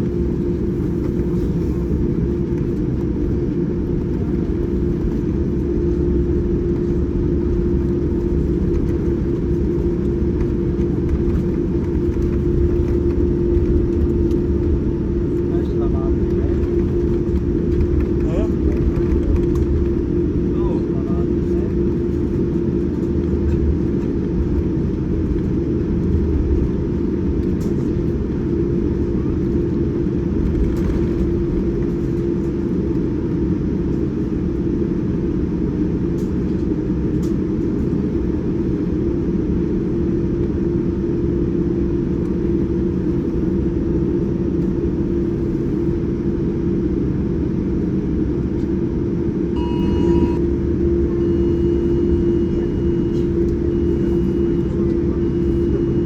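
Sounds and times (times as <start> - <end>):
aircraft cabin engine rumble: 0.0 - 56.0
steady hum: 0.0 - 56.0
short tone: 49.6 - 56.0.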